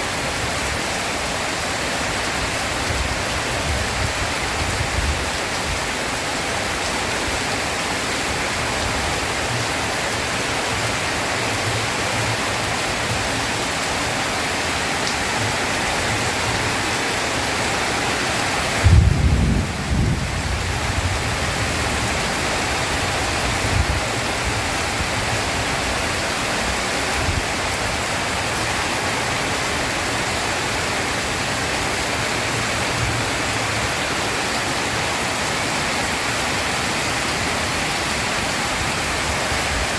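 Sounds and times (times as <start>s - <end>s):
heavy rain: 0.0s - 39.9s
thunder rumbling: 18.8s - 22.1s.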